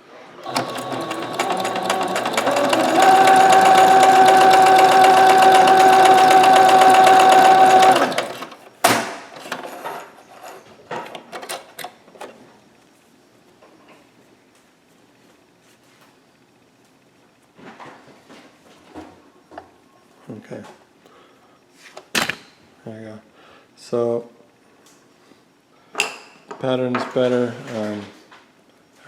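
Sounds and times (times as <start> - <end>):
sewing machine stitching: 0.4 - 10.0.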